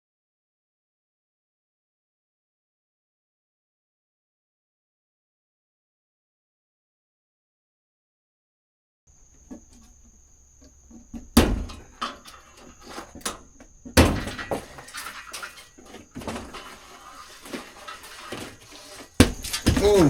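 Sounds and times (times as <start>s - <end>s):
knocks and clunks of handling: 9.2s - 20.0s.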